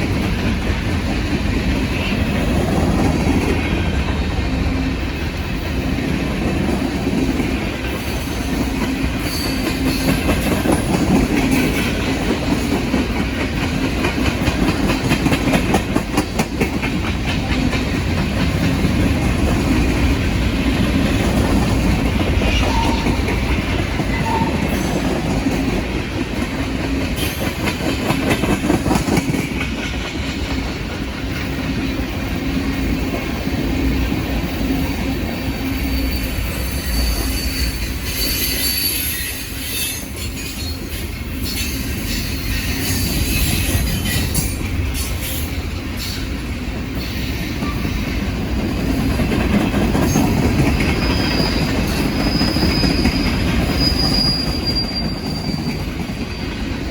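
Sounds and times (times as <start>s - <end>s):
wheels clacking over rail joints: 0.0s - 35.1s
freight train rumbling past: 0.0s - 56.9s.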